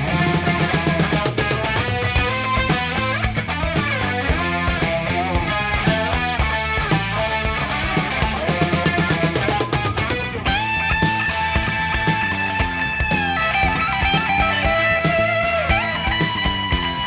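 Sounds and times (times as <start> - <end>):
bass guitar: 0.0 - 17.0
drums: 0.0 - 17.0
electric guitar runs: 0.0 - 17.0.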